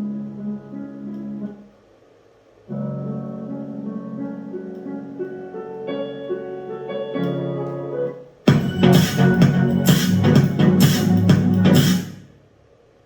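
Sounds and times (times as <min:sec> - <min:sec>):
piano music through speaker: 0:02.7 - 0:12.2.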